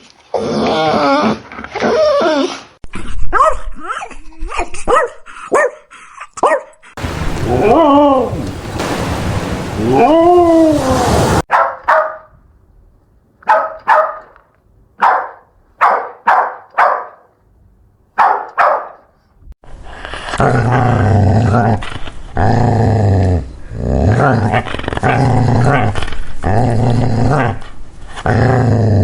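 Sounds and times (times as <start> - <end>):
dogs barking: 4.9 - 6.8, 11.5 - 12.3, 13.4 - 14.4, 15.0 - 17.3, 18.2 - 19.1
low growling: 19.8 - 29.0.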